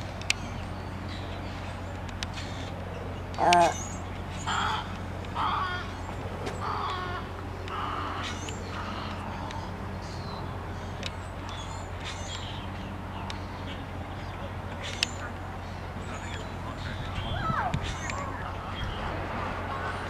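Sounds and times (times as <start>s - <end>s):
small birds chirping faintly: 0.0s - 19.1s
birds giving harsh crow-like calls: 2.3s - 10.4s.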